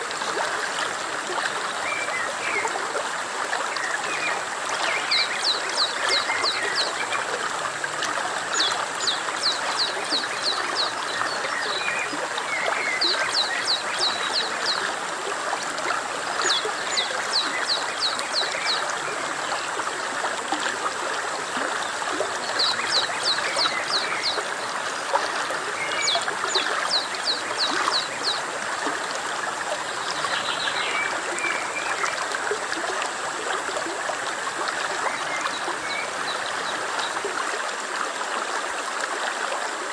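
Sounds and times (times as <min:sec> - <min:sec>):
stream rushing and trickling: 0:00.0 - 0:39.9
songbird singing: 0:03.7 - 0:07.4, 0:08.4 - 0:15.0, 0:16.2 - 0:19.7, 0:21.8 - 0:28.5, 0:29.4 - 0:32.2, 0:34.8 - 0:37.2.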